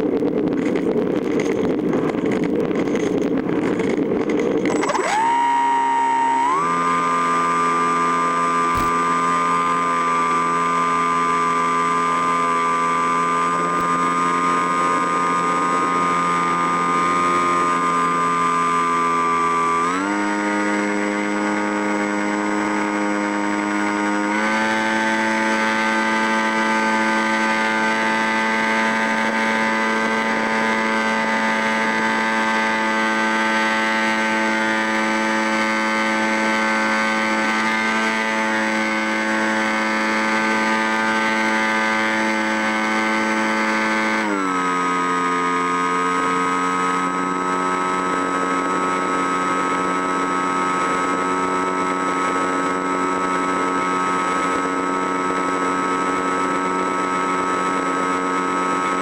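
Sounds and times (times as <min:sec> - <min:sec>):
machine humming: 0:01.2 - 0:18.4.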